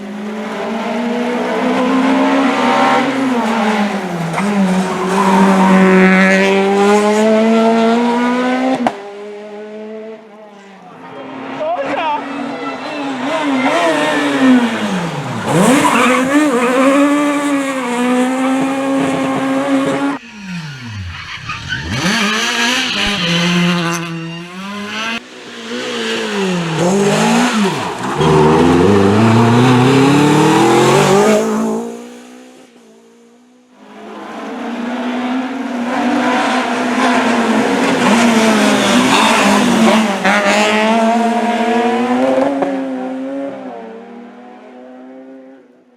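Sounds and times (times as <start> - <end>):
rally car engines revving: 0.0 - 45.8
tyre squeal: 12.6 - 17.4, 20.2 - 25.2, 26.0 - 31.4, 36.2 - 40.9.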